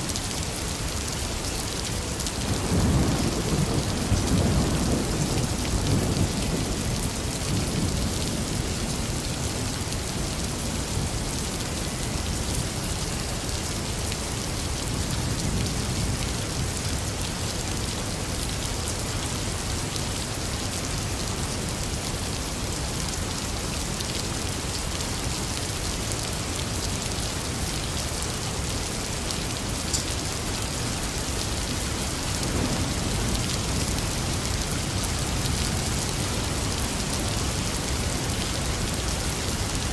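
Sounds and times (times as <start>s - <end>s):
heavy rain falling: 0.0s - 39.9s
low rumble of thunder: 2.2s - 12.4s, 30.8s - 39.8s.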